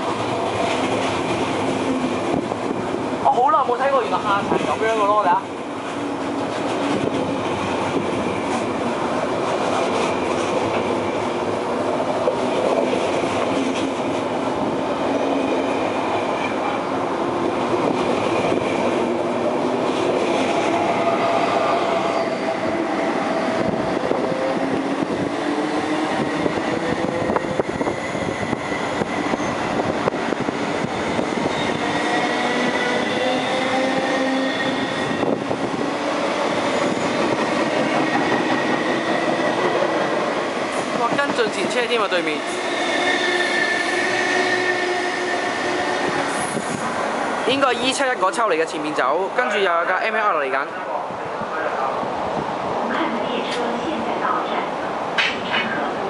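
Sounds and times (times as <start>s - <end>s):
train running on rails: 0.0s - 56.0s
metro train motor whine: 5.4s - 41.0s, 42.3s - 47.4s.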